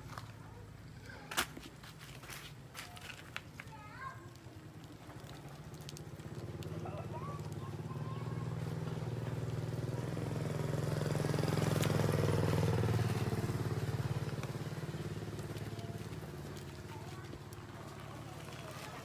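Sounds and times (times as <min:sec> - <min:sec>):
small engine running: 0:05.4 - 0:19.0.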